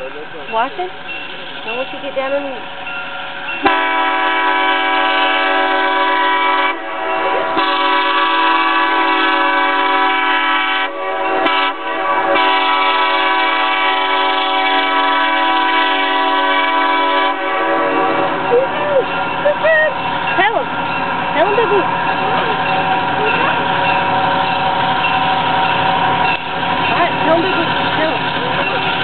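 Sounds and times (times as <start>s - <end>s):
train horn blasts: 3.6s - 18.5s.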